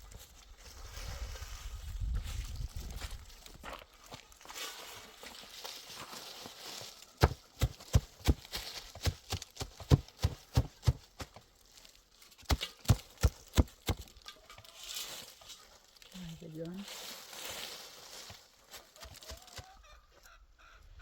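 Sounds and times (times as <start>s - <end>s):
sharp knocks: 7.2s - 8.5s.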